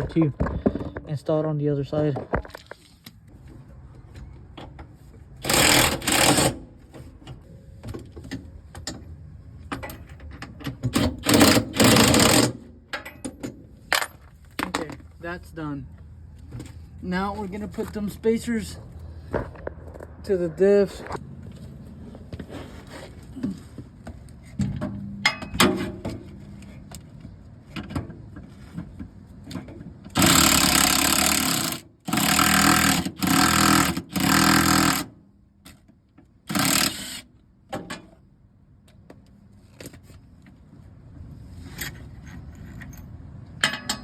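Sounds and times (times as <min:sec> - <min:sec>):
power tool driving bolts: 0:05.4 - 0:06.7, 0:10.6 - 0:13.6, 0:30.1 - 0:35.2, 0:36.5 - 0:37.4.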